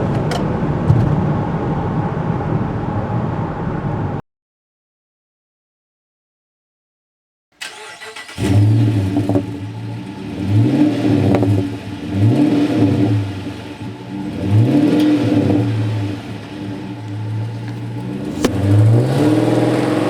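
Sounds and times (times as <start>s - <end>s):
car engine starting and revving: 7.6s - 20.0s.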